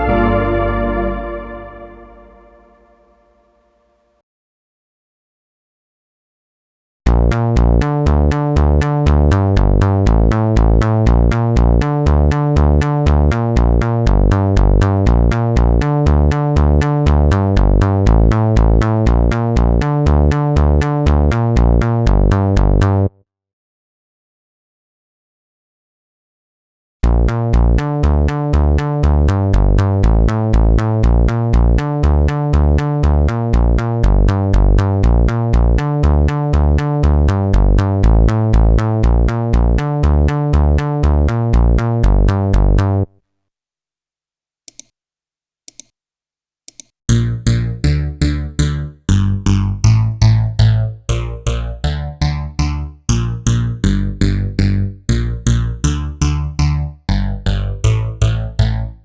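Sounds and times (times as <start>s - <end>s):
clicks: 44.7s - 44.9s, 45.7s - 45.9s, 46.7s - 46.9s
rhythmic synth sequence with bass: 47.1s - 59.0s.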